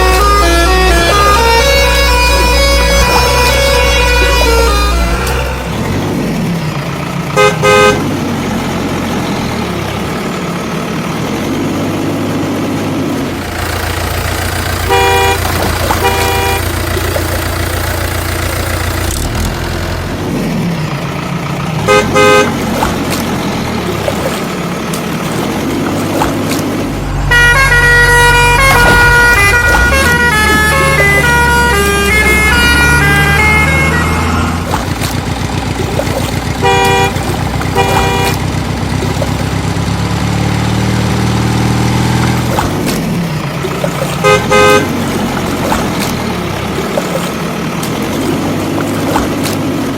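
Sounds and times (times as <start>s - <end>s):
horn playing a tune: 0.0s - 5.8s, 14.7s - 17.0s, 21.8s - 22.6s, 27.2s - 34.8s, 36.5s - 38.6s, 44.2s - 45.0s
vehicle horn toots: 0.0s - 5.9s, 7.3s - 8.2s, 14.6s - 17.4s, 21.8s - 22.7s, 27.2s - 35.0s, 36.4s - 39.9s, 44.2s - 45.1s
low engine drone: 0.0s - 49.9s.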